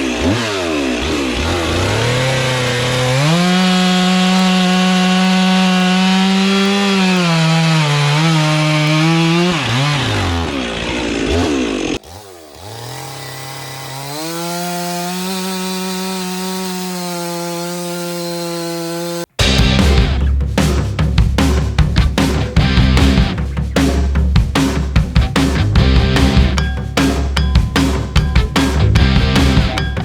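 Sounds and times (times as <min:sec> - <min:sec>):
chainsaw cutting a log: 0:00.0 - 0:19.6.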